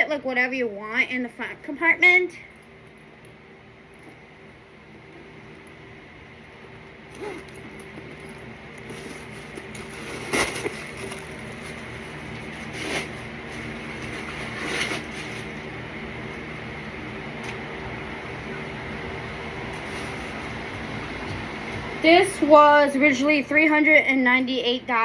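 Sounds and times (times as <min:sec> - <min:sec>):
steady background hum: 0:00.0 - 0:25.0
handbag handling noises: 0:07.1 - 0:15.6.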